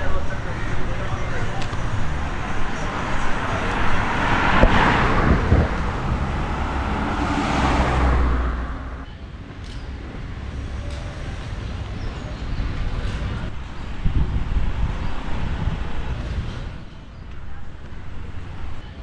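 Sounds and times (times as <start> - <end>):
street background noise: 0.0 - 19.0
vehicle passing close by: 1.9 - 9.0.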